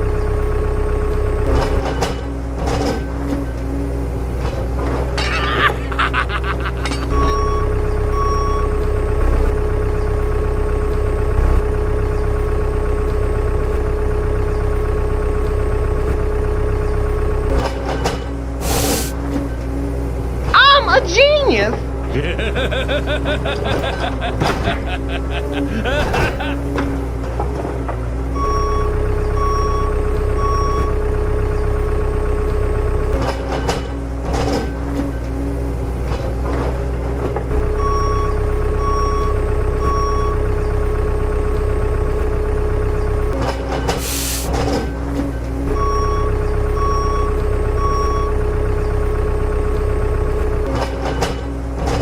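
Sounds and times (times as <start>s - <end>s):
heavy vehicle engine rumbling: 0.0s - 52.0s
truck reversing alarm beeping: 5.5s - 17.7s, 20.6s - 27.0s, 28.3s - 33.2s, 37.5s - 43.4s, 44.0s - 50.7s
short beeps: 7.0s - 8.8s, 45.7s - 48.4s
low vehicle drone: 21.7s - 34.3s.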